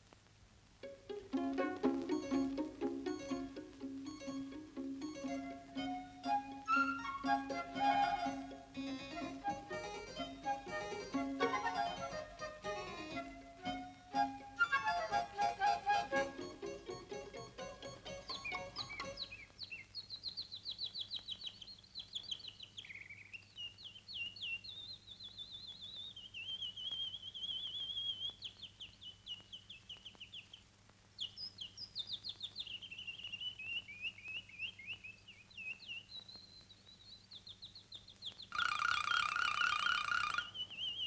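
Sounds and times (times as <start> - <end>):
music: 0.8 - 19.3
bird warbling and trilling: 18.0 - 19.9, 38.4 - 41.0.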